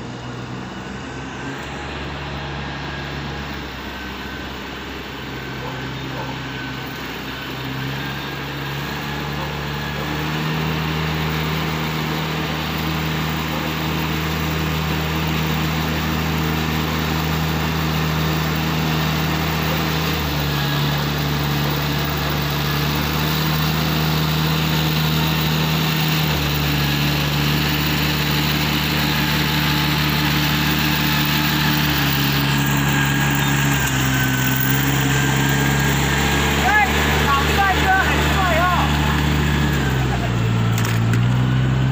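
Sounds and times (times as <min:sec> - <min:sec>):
small engine running: 0:00.0 - 0:41.9.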